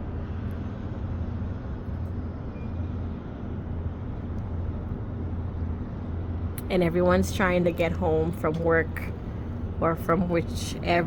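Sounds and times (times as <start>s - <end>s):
road traffic rumble: 3.3s - 11.0s.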